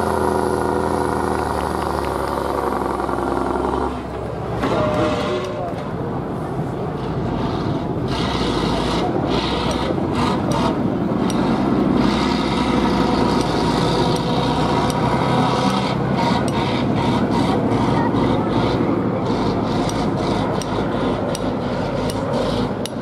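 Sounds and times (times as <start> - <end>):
rough noisy rasp: 0.0 - 5.8, 7.1 - 23.0
truck engine running: 0.0 - 23.0.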